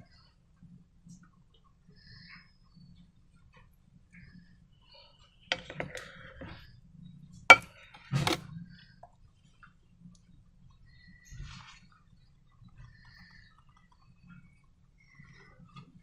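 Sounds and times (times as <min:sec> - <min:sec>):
sharp clicks and knocks: 0:05.5 - 0:06.5, 0:07.5 - 0:08.4.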